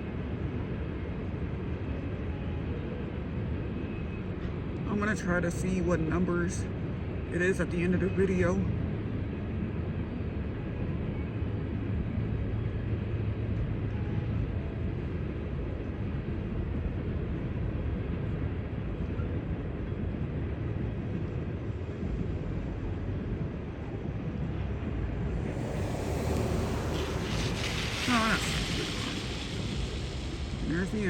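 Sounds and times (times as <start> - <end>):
freight cars rolling past: 22.4 - 31.0.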